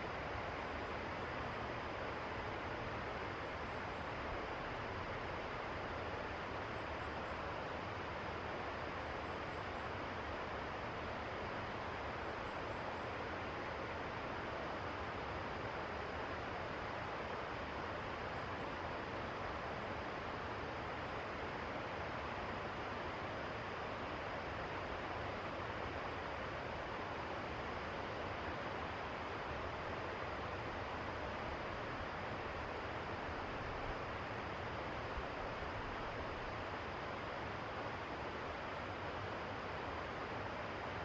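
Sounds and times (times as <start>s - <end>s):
river water rushing: 9.8s - 41.0s.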